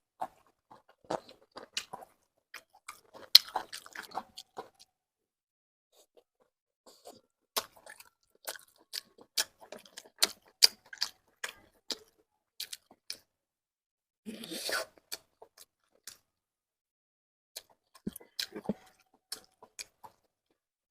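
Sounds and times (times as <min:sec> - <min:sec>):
person chewing crunchy food: 0:00.1 - 0:05.0, 0:06.9 - 0:13.3, 0:14.3 - 0:16.3, 0:17.6 - 0:20.6.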